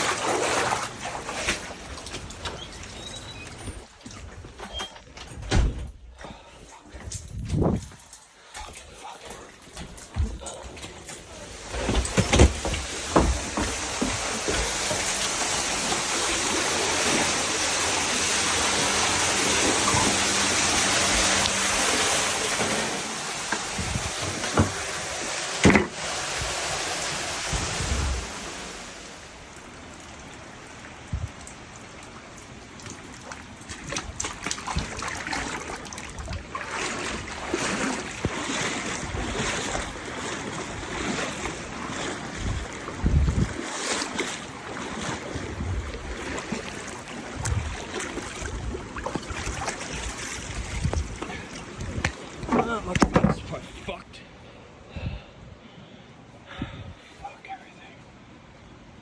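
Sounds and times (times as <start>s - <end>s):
floodwater rushing: 0.0s - 4.5s, 10.0s - 54.0s
knocks and bumps: 11.7s - 15.2s, 52.0s - 53.6s.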